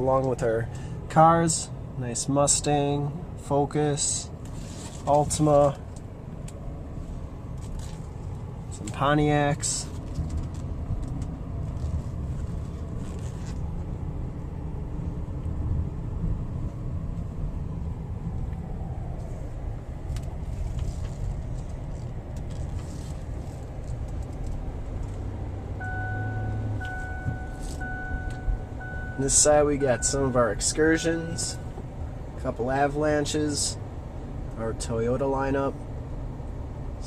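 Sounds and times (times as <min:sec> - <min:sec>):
car engine and tyre rumble: 0:00.0 - 0:37.0
faint steady tone: 0:25.8 - 0:32.5.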